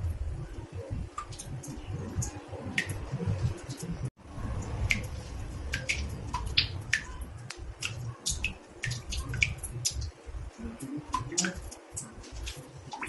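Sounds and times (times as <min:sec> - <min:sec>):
water drops plinking in bathtub: 0:04.5 - 0:13.0.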